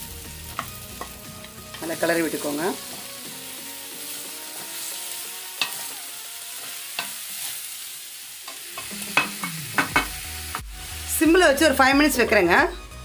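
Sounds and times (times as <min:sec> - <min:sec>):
mushrooms sizzling in a frying pan: 0:00.0 - 0:12.8
spatula knocking on pan: 0:08.8 - 0:10.2.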